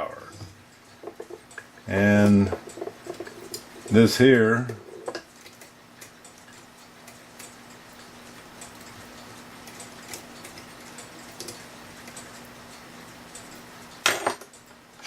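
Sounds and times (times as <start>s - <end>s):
steady low hum: 0.0s - 15.0s
faint light ticks and clicks: 5.1s - 14.8s.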